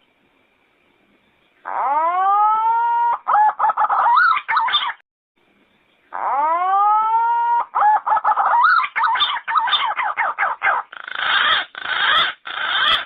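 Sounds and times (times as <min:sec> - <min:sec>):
pigeon whistling and warbling: 0:06.3 - 0:13.0.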